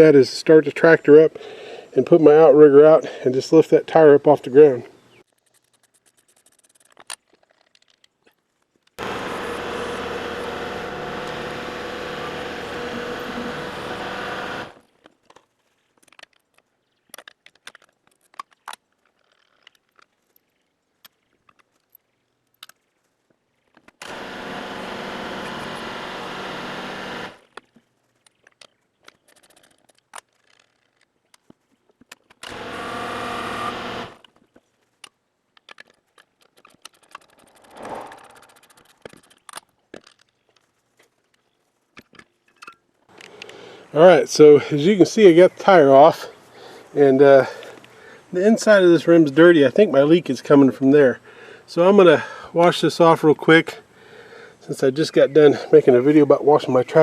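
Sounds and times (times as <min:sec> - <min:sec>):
tractor diesel engine running: 0:09.0 - 0:14.8, 0:24.0 - 0:27.4, 0:32.5 - 0:34.2.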